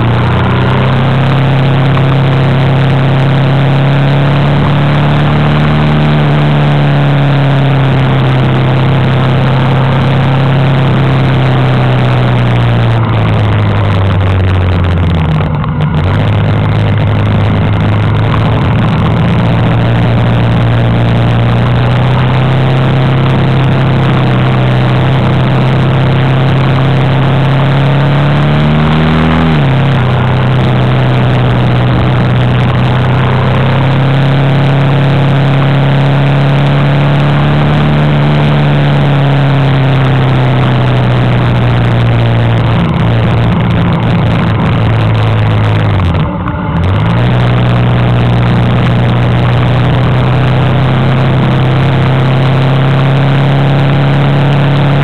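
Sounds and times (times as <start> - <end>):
motorcycle engine: 0.0 - 55.0
wind and road noise: 0.0 - 55.0.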